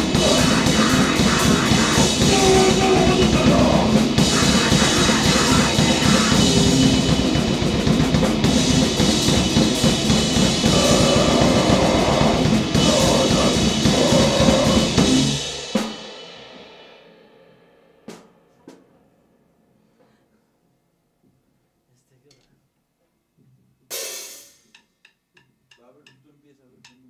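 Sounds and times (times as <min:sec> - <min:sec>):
noise band playing: 0:00.0 - 0:15.9
fast drumming with cymbals: 0:00.0 - 0:17.1.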